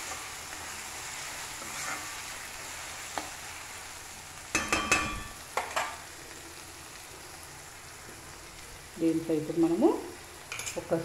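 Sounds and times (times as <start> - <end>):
onions sizzling in a pan: 0.0 - 11.0
utensil clanking against metal pan: 4.5 - 5.9.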